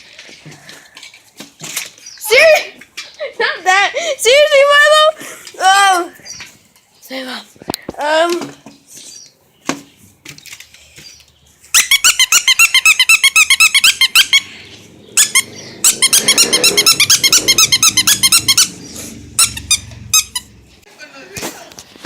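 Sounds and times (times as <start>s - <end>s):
squeaky dog toy squeaking: 11.7s - 14.5s, 15.2s - 20.6s.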